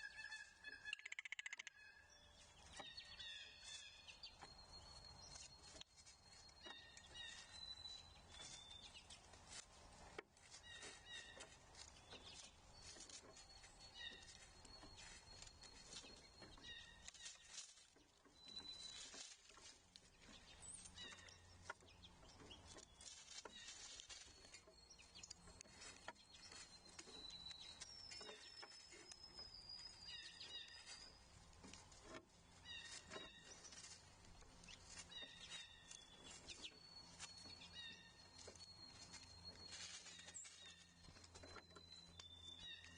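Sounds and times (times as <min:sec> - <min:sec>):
small clicks: 0:00.8 - 0:01.7.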